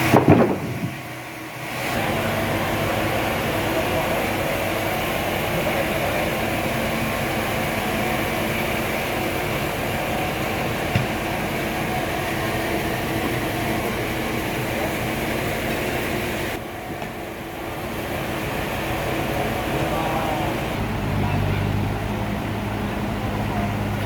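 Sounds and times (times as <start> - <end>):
sawmill machinery humming: 0.0 - 24.0.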